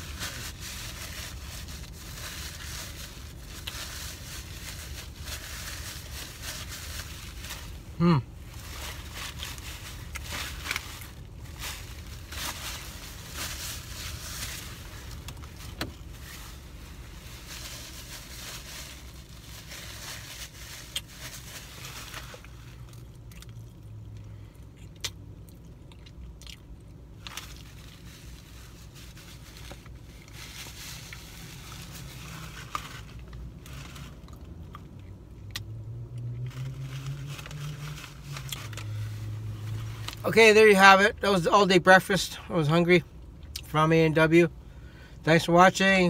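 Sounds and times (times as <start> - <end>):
low car interior hum: 0.0 - 46.0
person chewing food: 22.5 - 24.0, 24.6 - 27.1.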